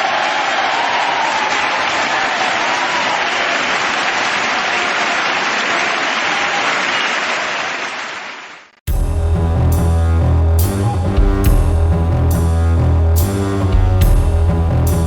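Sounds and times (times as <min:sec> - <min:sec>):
audience applause: 0:00.0 - 0:08.7
music with heavy bass and drums: 0:08.9 - 0:15.0.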